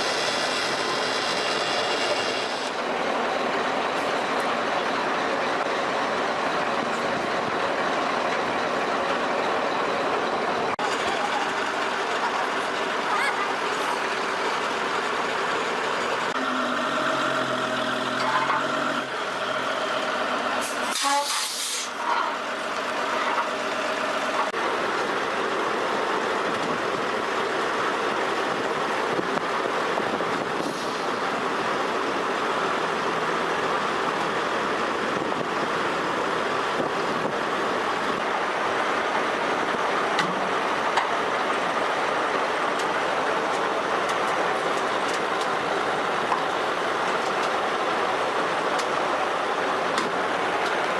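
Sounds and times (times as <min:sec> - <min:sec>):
truck engine and road rumble: 0:00.0 - 0:50.9
short loud hiss: 0:20.7 - 0:22.0.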